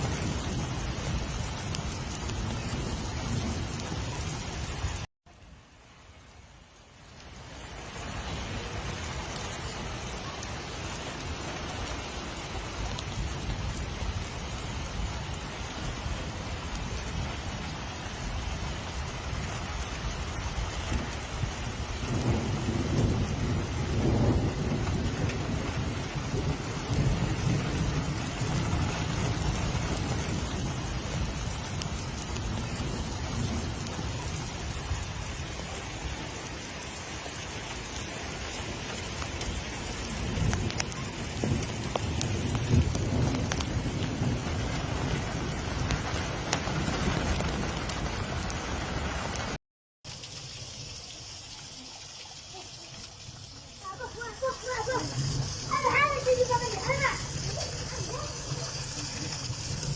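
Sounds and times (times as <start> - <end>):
heavy rain falling: 0.0 - 59.9
thunder rumbling: 8.0 - 36.2, 38.4 - 49.5, 53.9 - 59.9.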